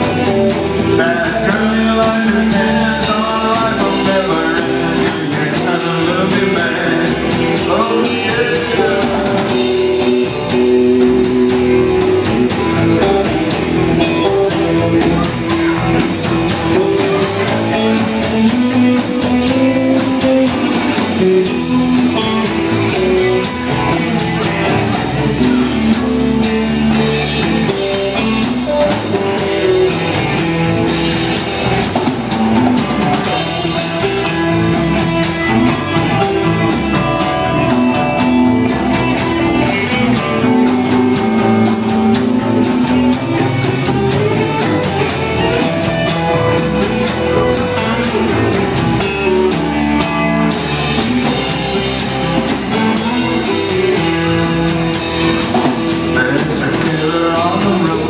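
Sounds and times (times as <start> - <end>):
bass line: 0.0 - 58.0
drum kit: 0.0 - 58.0
guitar: 0.0 - 58.0.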